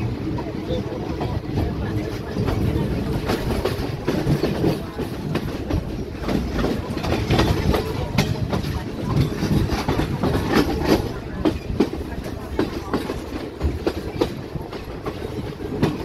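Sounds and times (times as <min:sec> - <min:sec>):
train rumbling on rails: 0:00.0 - 0:16.0
wheels clacking over rail joints: 0:01.0 - 0:16.0.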